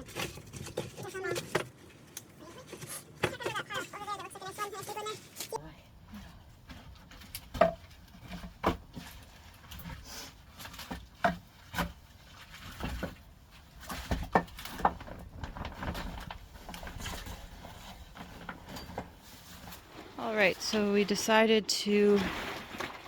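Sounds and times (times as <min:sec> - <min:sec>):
wood rubbing and scraping: 0:00.0 - 0:04.0, 0:06.6 - 0:21.5
firewood knocking and clunking: 0:06.4 - 0:21.4.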